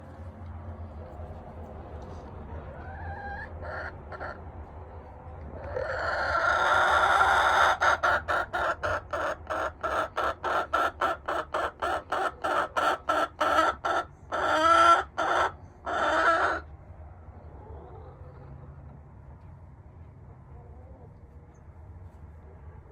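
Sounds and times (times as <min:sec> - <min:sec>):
chicken clucking: 0:01.1 - 0:04.4, 0:05.4 - 0:16.7, 0:17.4 - 0:19.0, 0:20.0 - 0:22.9
chicken drawn-out call: 0:02.4 - 0:04.4, 0:05.6 - 0:16.7
chicken squawks: 0:02.5 - 0:04.4, 0:05.6 - 0:16.7.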